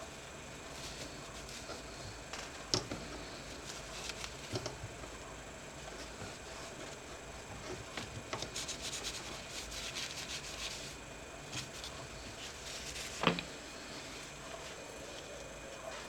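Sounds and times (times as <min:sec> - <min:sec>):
scratching and rubbing strokes: 0:05.8 - 0:16.0.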